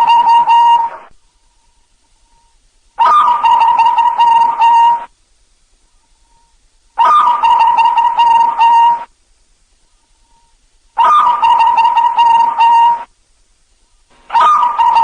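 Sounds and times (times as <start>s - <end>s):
dove cooing: 0.0s - 1.1s, 3.0s - 5.1s, 7.0s - 9.1s, 11.0s - 13.1s, 14.3s - 15.0s.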